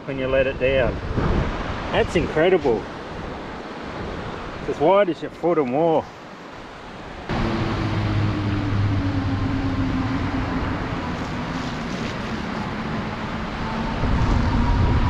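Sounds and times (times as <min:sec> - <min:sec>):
vehicle engine driving: 0:07.3 - 0:15.0.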